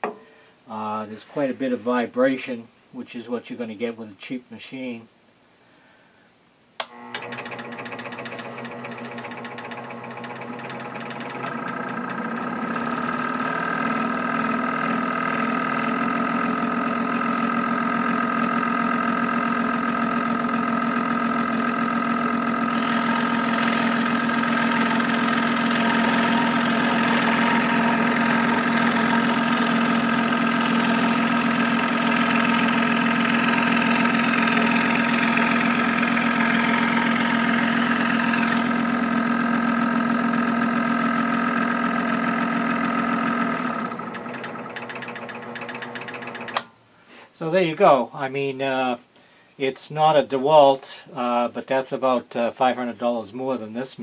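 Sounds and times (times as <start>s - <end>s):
scroll saw motor humming: 6.8s - 46.7s
saw blade rasping through wood: 7.6s - 13.6s, 22.7s - 38.8s.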